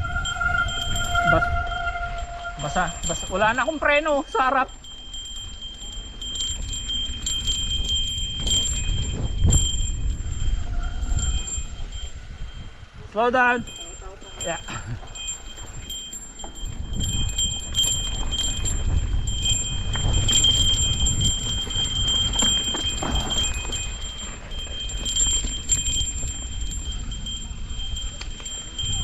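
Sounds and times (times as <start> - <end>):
high-pitched whine: 0.0 - 4.0
mountain bike rattling over trail: 0.0 - 12.7, 13.6 - 29.0.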